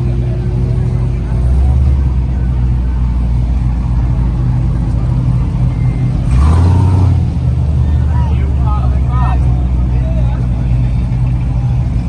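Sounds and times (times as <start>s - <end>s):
car engine running: 0.0s - 12.0s
engine revving: 3.6s - 10.0s.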